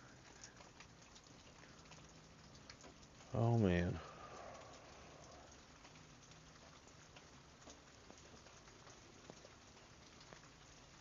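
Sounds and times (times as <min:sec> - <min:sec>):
faint steady rain: 0:00.0 - 0:11.0.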